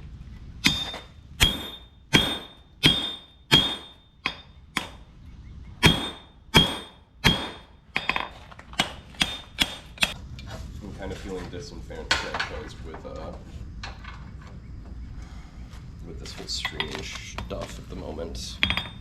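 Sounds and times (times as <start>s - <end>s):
hammer ringing on anvil: 0.6s - 5.0s, 5.8s - 10.2s.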